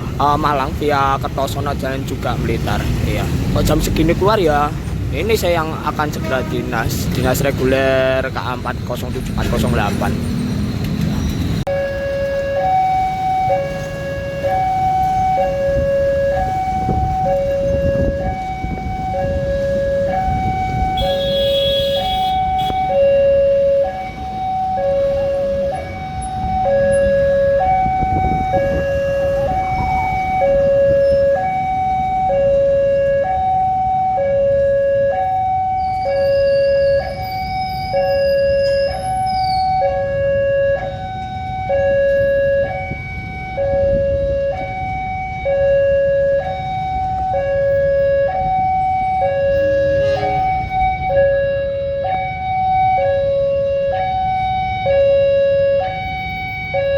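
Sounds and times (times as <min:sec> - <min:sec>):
rumbling traffic: 0:00.0 - 0:56.9
level crossing two-tone alarm: 0:11.7 - 0:56.9.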